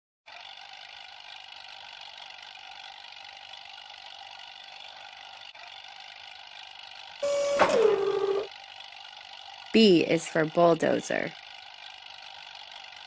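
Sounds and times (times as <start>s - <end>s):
bulldozer engine droning: 0.3s - 11.2s
loud tone falling in pitch: 7.2s - 8.5s.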